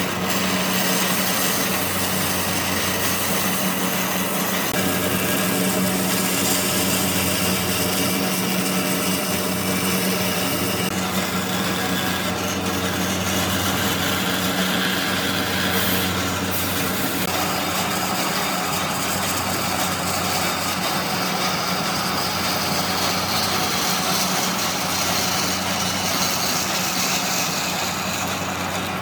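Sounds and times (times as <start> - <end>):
woodworking power tool running: 0.0 - 29.0.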